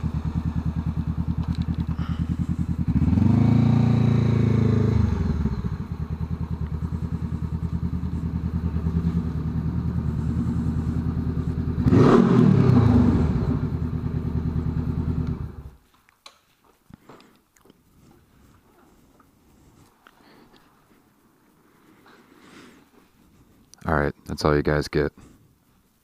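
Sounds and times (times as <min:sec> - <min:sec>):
motorcycle engine idling and revving: 0:00.0 - 0:15.8.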